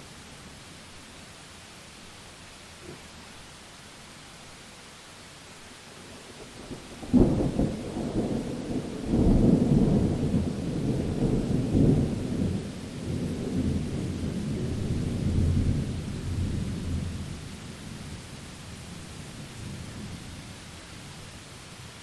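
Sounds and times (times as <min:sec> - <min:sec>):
steady rain: 0:00.0 - 0:22.0
thunder crack and rumble: 0:06.7 - 0:17.3.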